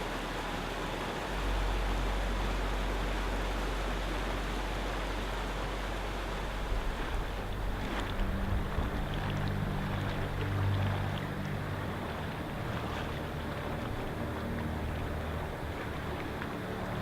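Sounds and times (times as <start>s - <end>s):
flowing water rushing: 0.0s - 17.0s
low steady tones: 0.0s - 17.0s.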